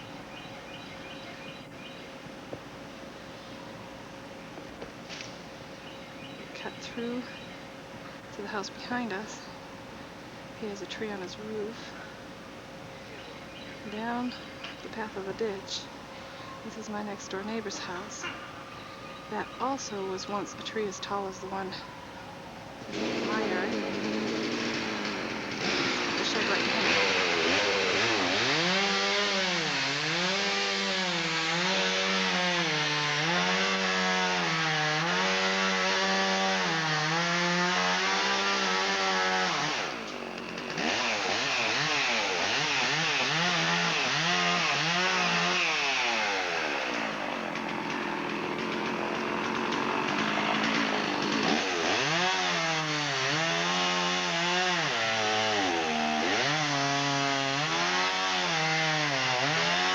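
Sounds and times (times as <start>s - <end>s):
chainsaw cutting wood: 22.9s - 59.9s.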